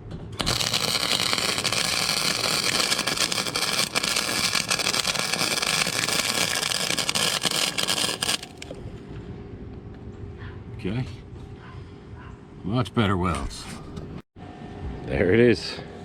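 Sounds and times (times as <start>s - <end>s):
welder arc crackling: 0.4s - 8.7s.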